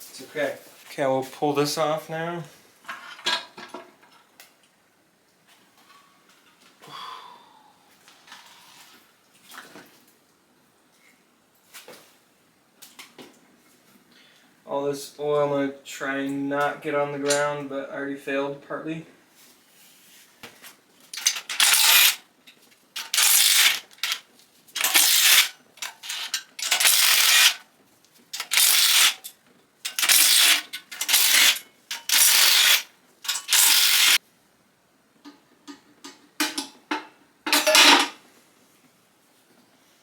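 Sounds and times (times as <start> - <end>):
ratchet wrench clicking: 21.2 - 22.2, 23.0 - 24.2, 24.8 - 27.6, 28.4 - 29.2, 29.9 - 34.2.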